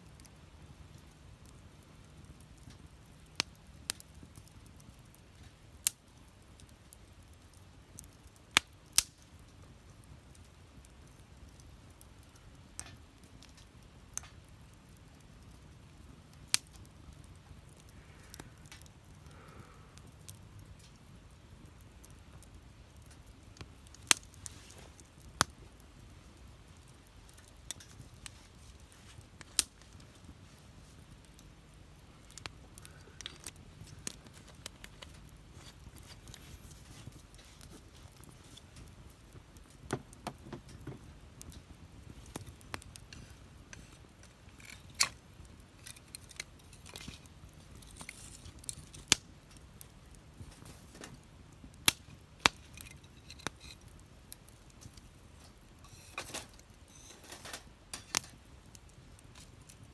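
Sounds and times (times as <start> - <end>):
faint low hiss: 0.0 - 59.9
wood fire crackling: 0.0 - 59.9.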